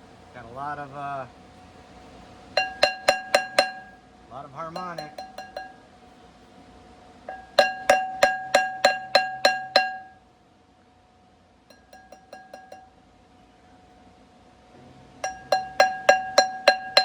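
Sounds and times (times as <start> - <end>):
hammer ringing on steel flywheel: 2.6 - 4.0, 4.6 - 5.9, 7.3 - 10.3, 11.7 - 13.0, 15.2 - 17.0.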